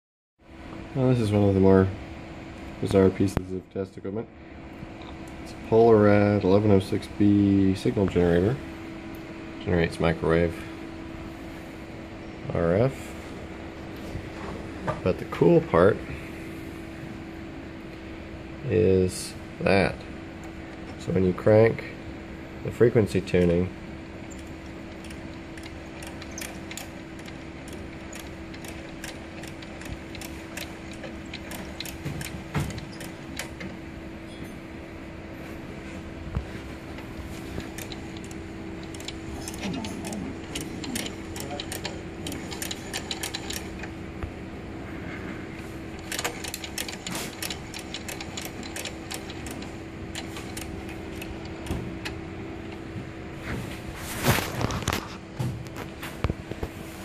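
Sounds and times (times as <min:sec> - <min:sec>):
steady hum: 0:00.4 - 0:57.0
tuning crank clicking gear noise: 0:24.2 - 0:33.7, 0:37.6 - 0:44.0, 0:45.9 - 0:52.2.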